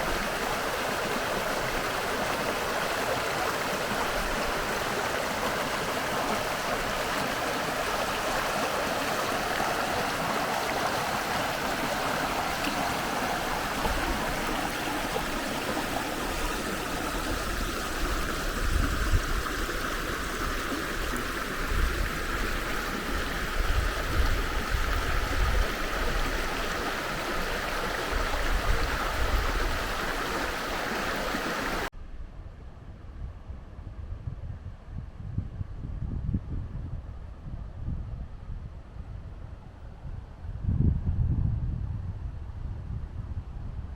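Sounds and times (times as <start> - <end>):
river water rushing: 0.0 - 31.9
wind buffeting microphone: 0.0 - 43.9.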